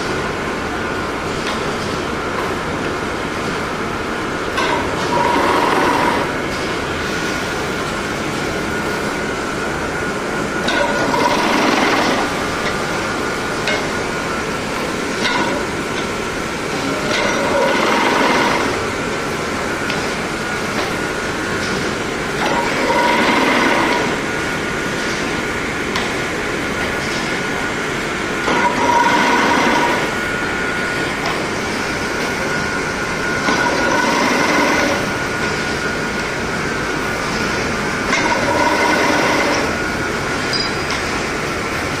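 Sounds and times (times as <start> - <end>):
weaving machine clattering and whirring: 4.6 - 6.4, 10.6 - 24.4, 28.4 - 30.2, 31.1 - 36.6, 37.2 - 41.2.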